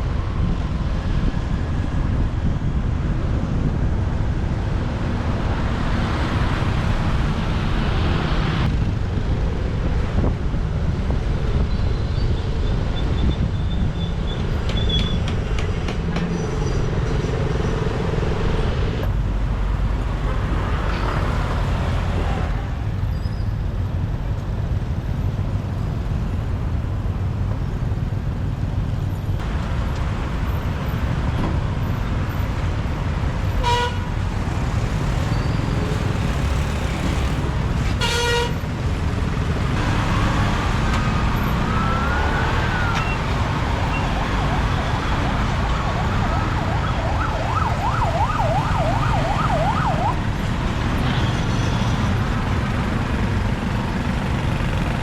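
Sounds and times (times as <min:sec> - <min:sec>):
horn toots: 0:33.6 - 0:34.2, 0:37.8 - 0:38.7
siren rising and falling: 0:39.8 - 0:50.2.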